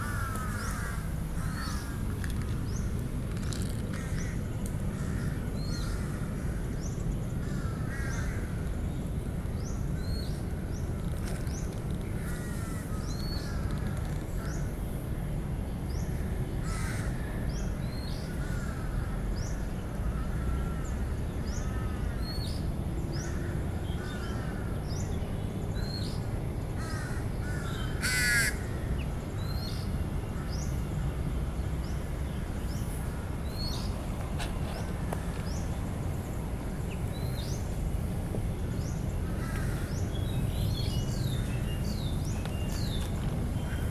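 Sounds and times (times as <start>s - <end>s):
crows cawing: 0.0s - 2.1s, 3.9s - 6.7s, 7.4s - 8.6s, 12.2s - 13.7s, 16.6s - 17.3s, 26.8s - 28.8s, 39.2s - 40.0s
low background rumble: 0.0s - 43.9s
small birds chirping: 31.8s - 43.9s.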